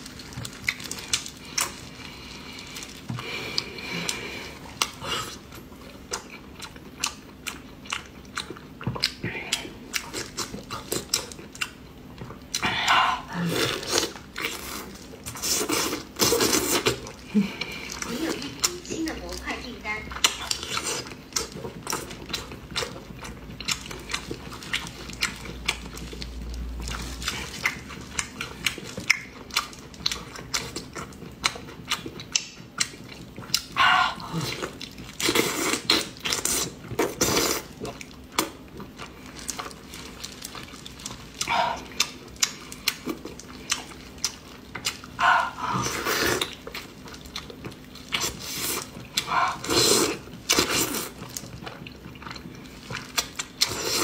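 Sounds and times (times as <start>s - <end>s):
wet chewing: 0.0s - 54.0s
wet slurping mouth sounds: 48.2s - 51.2s.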